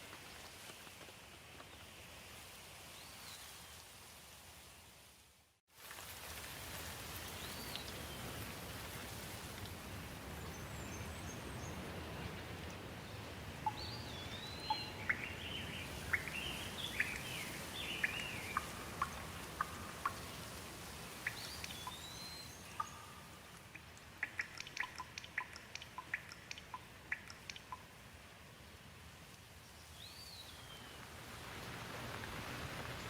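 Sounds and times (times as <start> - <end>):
steady rain hiss: 0.0 - 33.0
bird chirping: 13.6 - 20.4, 21.2 - 27.9
water drops dripping: 18.0 - 20.4, 21.2 - 22.1, 22.7 - 28.0.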